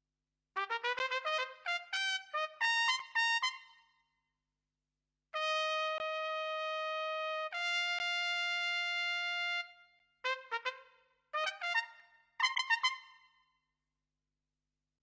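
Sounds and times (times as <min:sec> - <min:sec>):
trumpet notes: 0:00.6 - 0:03.8, 0:05.4 - 0:13.2.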